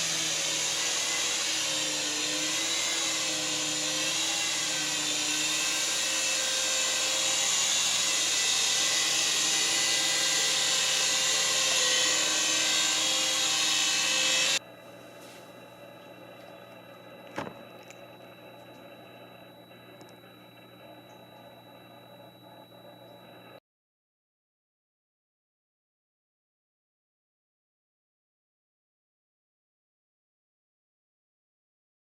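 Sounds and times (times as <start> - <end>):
toy helicopter rotor motors whining: 0.0 - 14.6.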